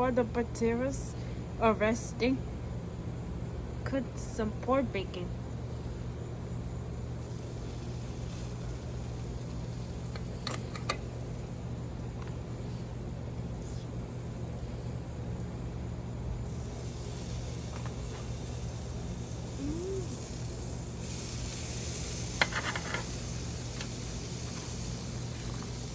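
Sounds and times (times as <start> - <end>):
bacon sizzling: 7.0 - 25.9.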